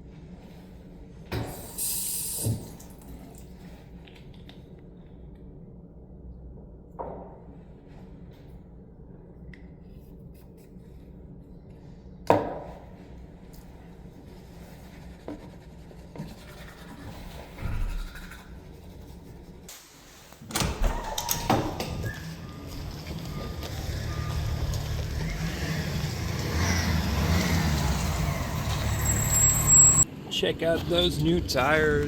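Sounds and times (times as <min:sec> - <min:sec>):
vehicle engine rumble: 0:22.1 - 0:32.0.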